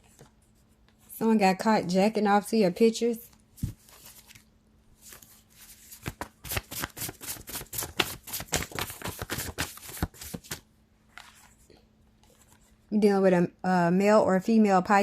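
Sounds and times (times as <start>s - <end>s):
cards being shuffled: 3.6s - 11.6s.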